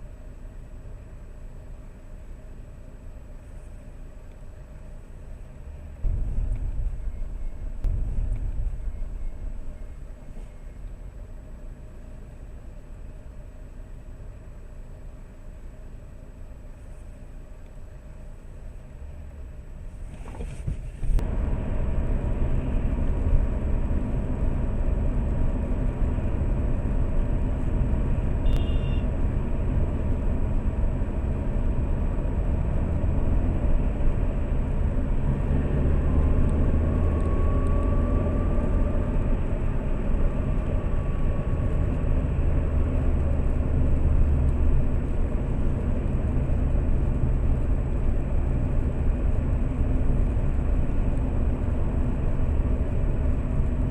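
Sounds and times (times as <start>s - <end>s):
car engine and road noise: 0.0s - 53.9s
brief high tone: 28.4s - 29.1s.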